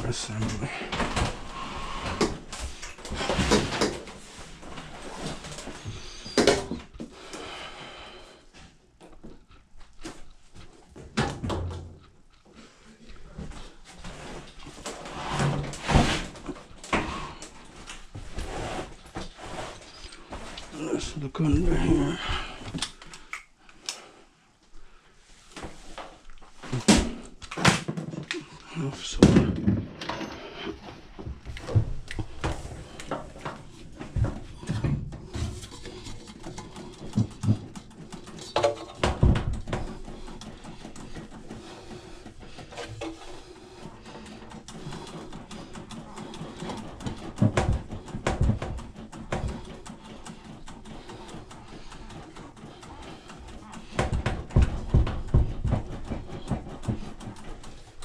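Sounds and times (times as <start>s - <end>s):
scraping of washer panels: 26.5s - 58.0s.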